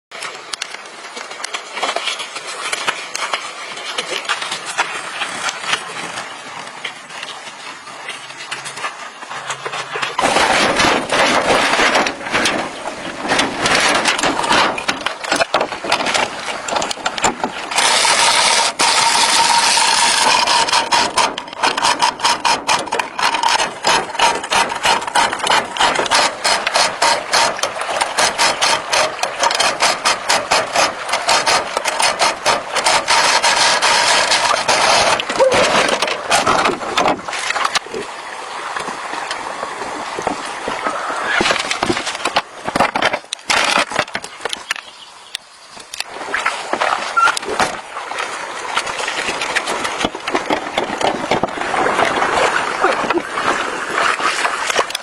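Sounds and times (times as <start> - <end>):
tool scraping and clicking: 9.5 - 37.9, 41.4 - 46.1, 49.4 - 52.2.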